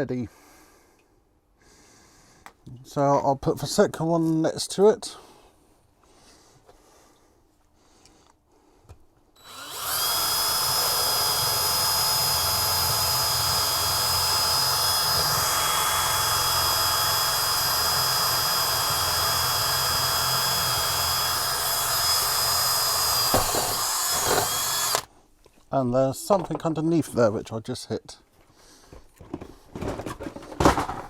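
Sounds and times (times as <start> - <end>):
drill bit knocking: 9.4 - 25.1
electric drill boring with high whine: 9.4 - 25.1.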